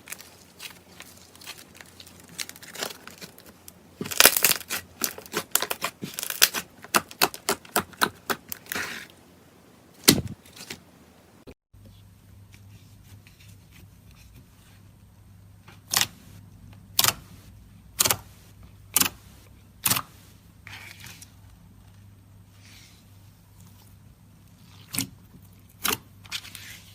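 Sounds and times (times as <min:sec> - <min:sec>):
slime crackling and popping: 0:00.0 - 0:09.1
faint steady hum: 0:00.0 - 0:25.8.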